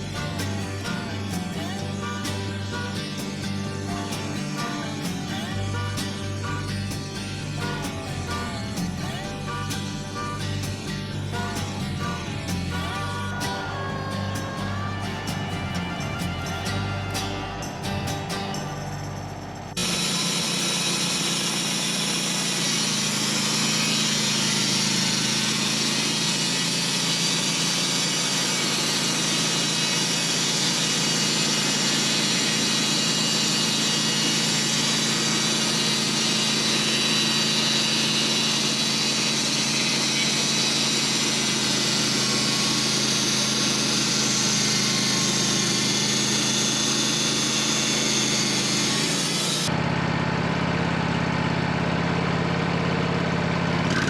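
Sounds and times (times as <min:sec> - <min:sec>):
sawmill engine drone: 0:00.0 - 0:54.0
saw blade hissing through log: 0:19.8 - 0:49.7.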